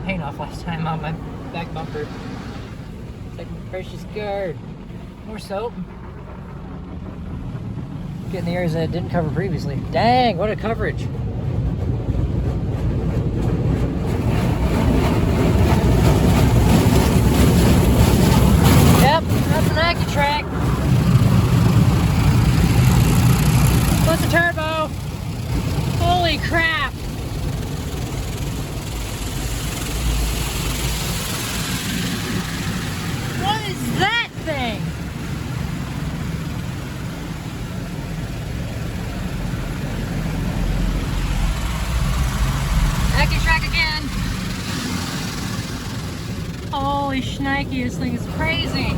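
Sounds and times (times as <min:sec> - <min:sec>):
low mechanical rumble: 0:00.0 - 0:48.9
water jets blasting car: 0:08.1 - 0:48.9.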